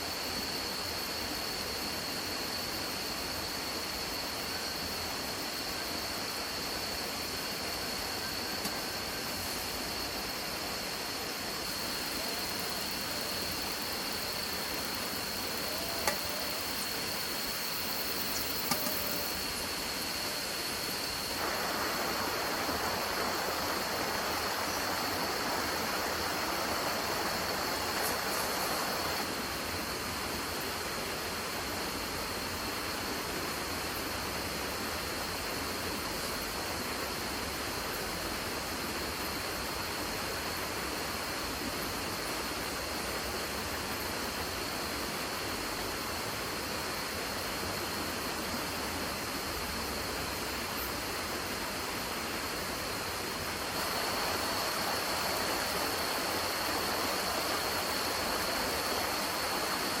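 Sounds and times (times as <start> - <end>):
rushing outdoor noise: 0.0 - 60.0
thin high whine: 7.5 - 29.3.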